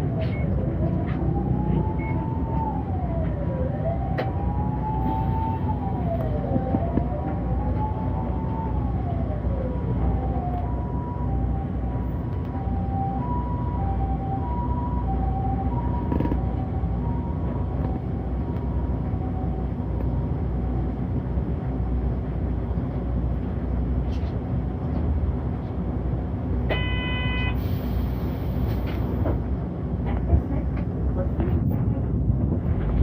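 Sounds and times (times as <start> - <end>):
bus engine and road rumble: 0.0 - 33.0
two-tone siren: 0.2 - 19.6, 26.7 - 27.6.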